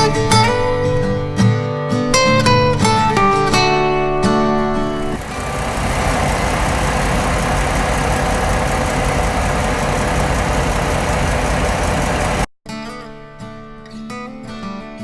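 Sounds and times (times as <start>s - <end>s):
diesel generator engine running: 2.2s - 12.5s.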